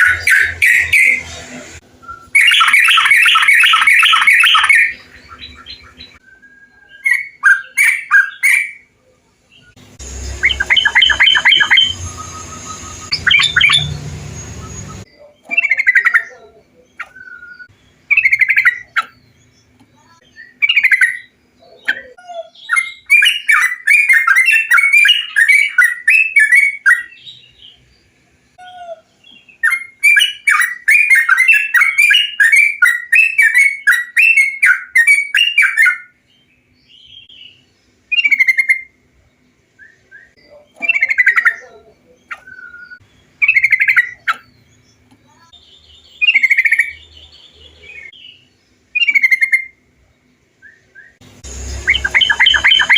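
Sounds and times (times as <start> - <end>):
bulbul whistled song: 1.9 - 8.9, 9.6 - 16.3, 17.0 - 19.2, 22.6 - 27.4, 29.4 - 36.2, 39.8 - 41.6, 48.0 - 49.8, 50.6 - 52.9
rapid chattering bird notes: 9.9 - 16.3, 51.4 - 52.9.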